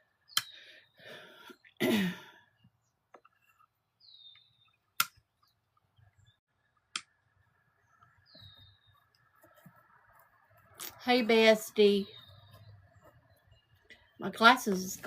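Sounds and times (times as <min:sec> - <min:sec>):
sharp clicks: 0:05.0 - 0:05.2.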